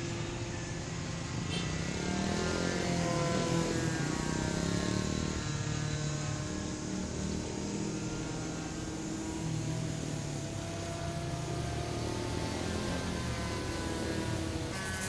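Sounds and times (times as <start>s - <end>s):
model plane engine in flight: 0.0s - 15.0s.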